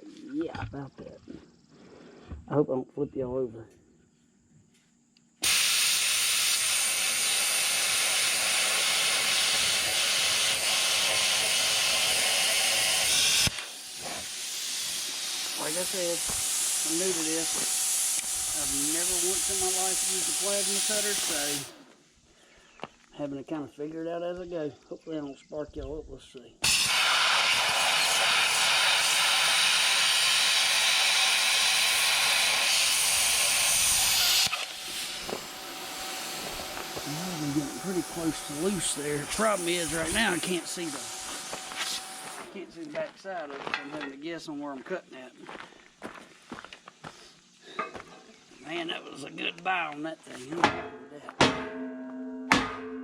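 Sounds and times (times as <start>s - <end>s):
plasma cutter hissing: 5.4s - 21.8s, 26.6s - 42.6s.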